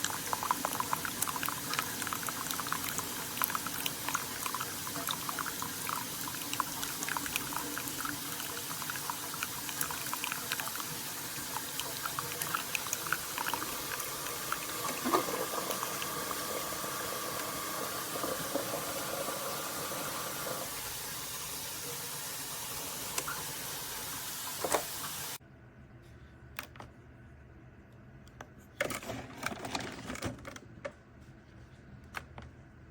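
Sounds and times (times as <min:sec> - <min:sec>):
coffee maker bubbling: 0:00.0 - 0:25.4.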